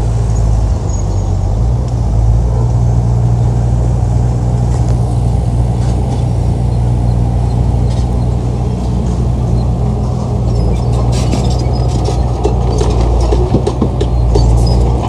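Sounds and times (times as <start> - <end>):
large diesel engine running: 0.0 - 15.0
faint knocks and clanks: 9.0 - 15.0.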